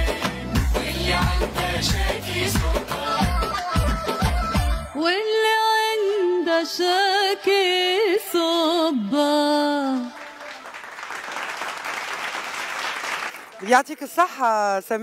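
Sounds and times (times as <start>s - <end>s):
woman singing into microphone: 0.0s - 10.3s
audience applause: 9.7s - 13.8s.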